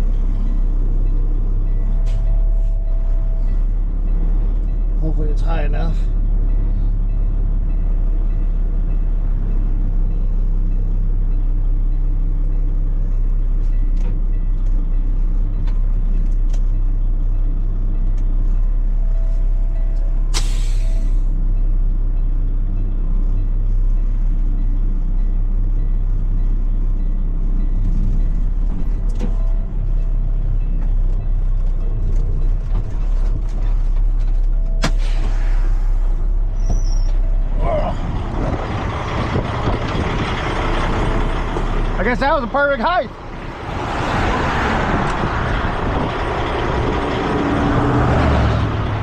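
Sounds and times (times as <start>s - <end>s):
truck diesel engine idling: 0.0s - 49.0s
air brake hissing: 20.3s - 21.3s, 34.8s - 37.0s.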